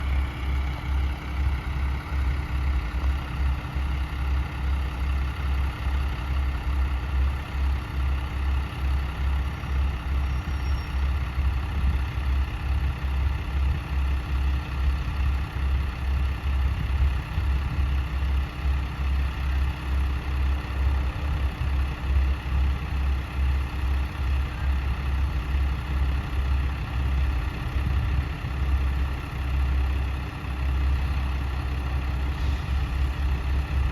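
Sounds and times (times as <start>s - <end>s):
diesel railcar engine idling: 0.0s - 33.9s.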